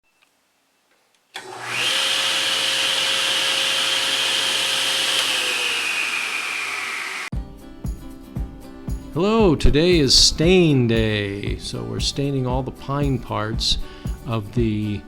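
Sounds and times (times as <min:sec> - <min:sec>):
power tool switch click: 0:01.4 - 0:07.2
electric motor high whine: 0:01.4 - 0:07.3.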